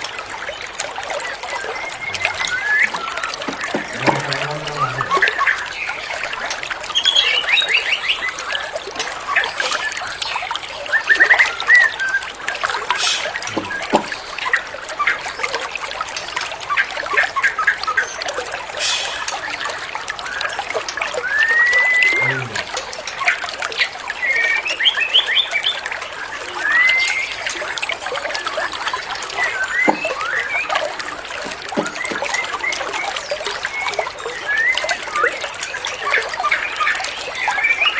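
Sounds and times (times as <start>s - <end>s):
trickling water: 0.0s - 37.9s
songbird whistles and trills: 1.2s - 4.0s, 21.2s - 22.3s, 26.5s - 27.6s, 29.3s - 35.3s.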